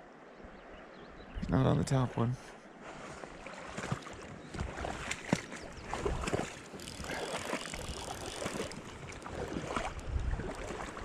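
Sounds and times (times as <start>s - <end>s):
river water rushing and splashing: 2.6s - 11.0s.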